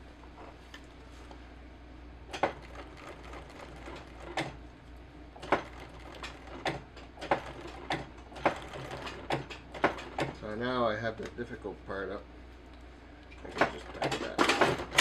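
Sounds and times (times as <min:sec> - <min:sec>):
sewing machine humming: 0:02.3 - 0:04.7, 0:05.3 - 0:10.6, 0:13.4 - 0:15.0
sewing machine needle clacking: 0:05.4 - 0:10.4, 0:13.4 - 0:15.0.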